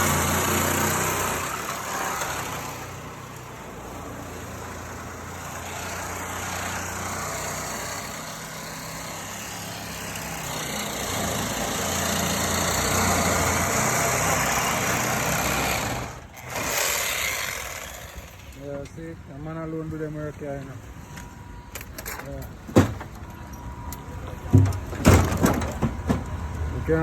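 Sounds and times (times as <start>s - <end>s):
heavy machinery engine running: 0.0s - 18.6s.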